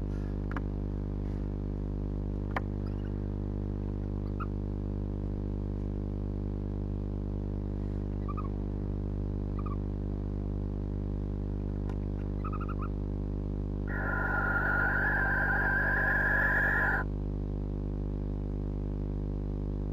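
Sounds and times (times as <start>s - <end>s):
steady electrical hum: 0.0s - 19.9s
owl squeaky chirps: 12.4s - 12.9s, 13.9s - 17.0s.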